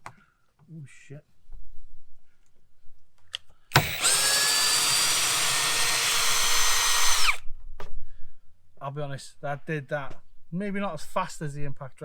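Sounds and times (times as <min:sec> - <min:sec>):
cordless drill motor whine: 0:03.7 - 0:07.4.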